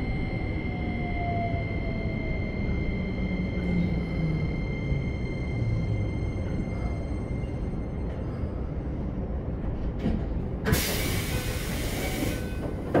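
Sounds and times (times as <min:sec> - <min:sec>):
train rumbling: 0:00.0 - 0:13.0
air brake hiss: 0:10.7 - 0:12.6.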